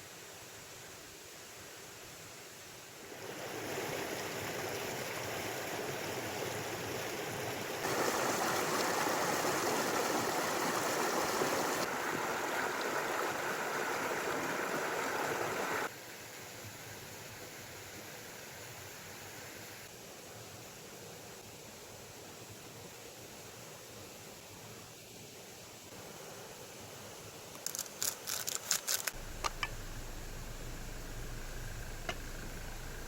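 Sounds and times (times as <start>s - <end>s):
stream water flowing: 3.0s - 15.9s, 26.0s - 33.0s.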